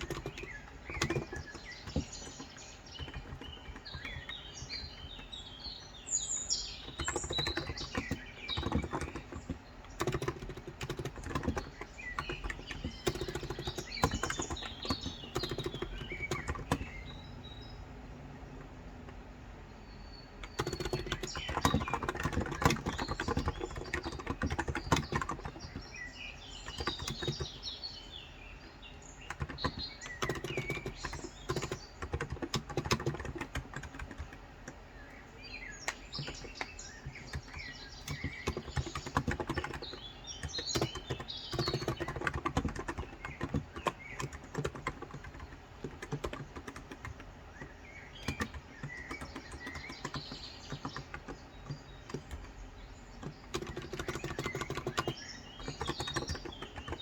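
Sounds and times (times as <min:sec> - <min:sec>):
typing on a keyboard: 0:00.0 - 0:05.8, 0:06.4 - 0:17.5, 0:20.4 - 0:27.8, 0:28.6 - 0:57.0
birds chirping: 0:00.0 - 0:57.0.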